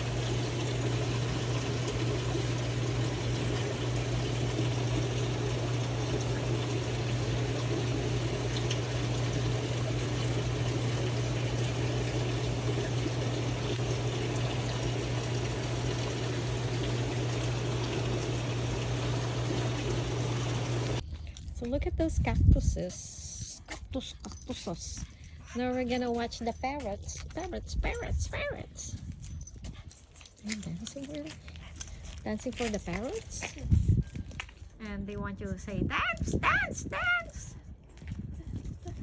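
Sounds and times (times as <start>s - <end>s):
running water: 0.0s - 21.0s
constant low hum: 0.0s - 39.0s.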